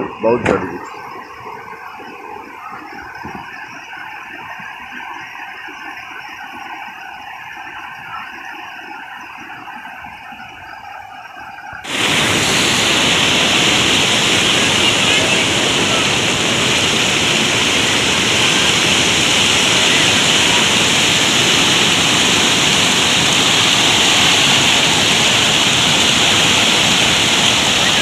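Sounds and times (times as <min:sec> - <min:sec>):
river rushing: 0:11.9 - 0:28.0.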